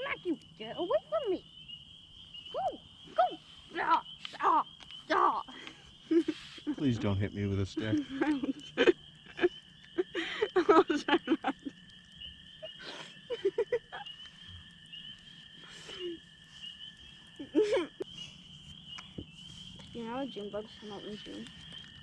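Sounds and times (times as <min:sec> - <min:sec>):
night chorus of calling animals: 0:00.0 - 0:22.0
people yelping and laughing: 0:02.6 - 0:11.9, 0:12.6 - 0:14.2, 0:17.4 - 0:18.1.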